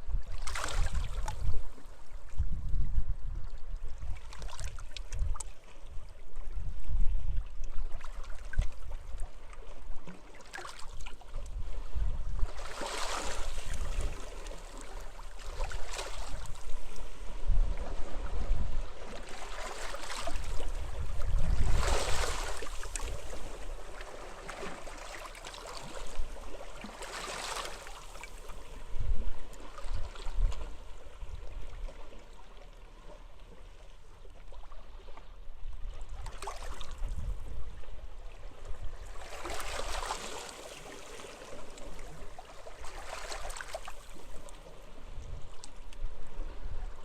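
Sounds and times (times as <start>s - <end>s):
wind buffeting microphone: 0.0s - 5.4s, 20.2s - 23.6s, 36.9s - 38.0s
sea waves washing on beach: 12.4s - 18.3s, 18.9s - 28.9s.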